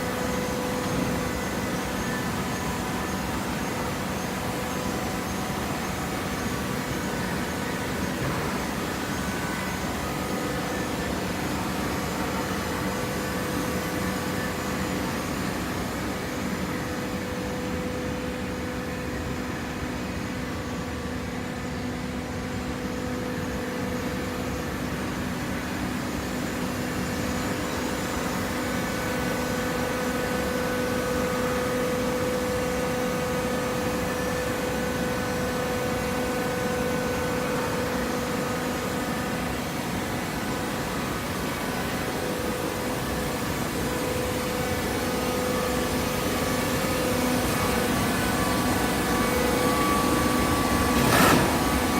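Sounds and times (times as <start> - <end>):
baler machine droning: 26.9 - 51.9.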